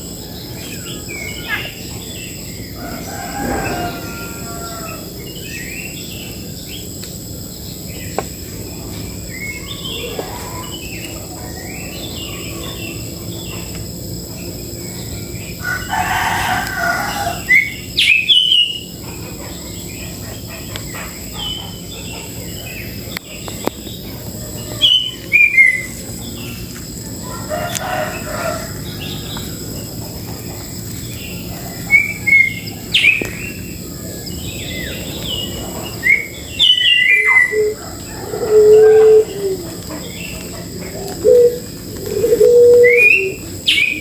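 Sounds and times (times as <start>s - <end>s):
low long bird call: 0.0s - 6.4s, 31.3s - 44.0s
birds chirping and whistling: 0.0s - 44.0s.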